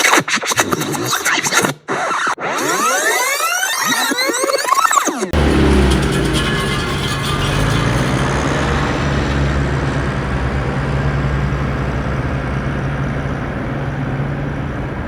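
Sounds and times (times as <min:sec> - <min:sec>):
mechanical drone: 0:05.4 - 0:15.0.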